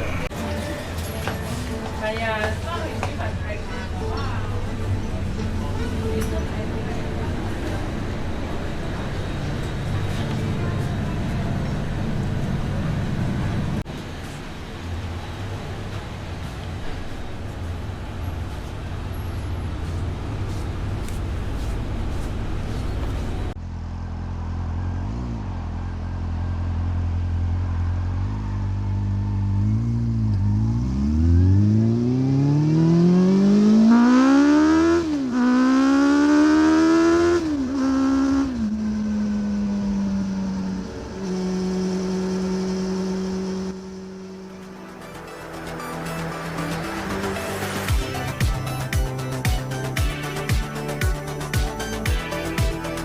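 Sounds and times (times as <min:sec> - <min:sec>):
road noise: 0:00.0 - 0:53.0
motorcycle engine accelerating: 0:19.3 - 0:48.6.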